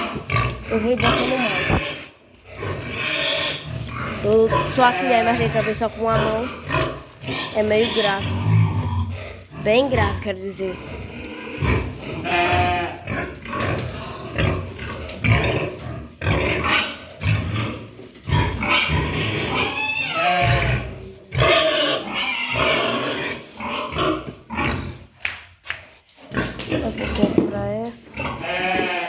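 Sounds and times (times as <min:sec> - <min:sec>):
pigs grunting: 0:00.0 - 0:25.1, 0:26.2 - 0:29.0
pig drawn-out call: 0:11.5 - 0:14.6, 0:18.3 - 0:24.8, 0:28.2 - 0:29.0.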